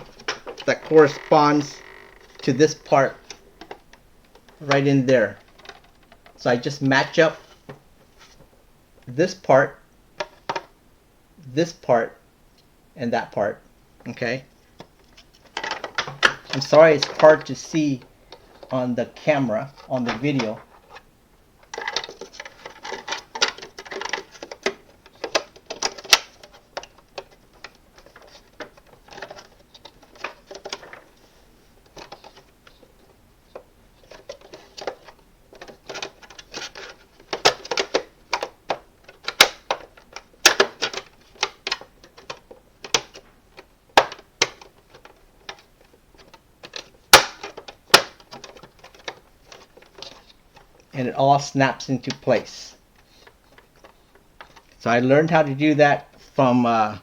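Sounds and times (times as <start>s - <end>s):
plastic parts clicking and rattling: 0.0s - 9.1s, 10.2s - 10.8s, 14.8s - 21.0s, 21.6s - 57.0s.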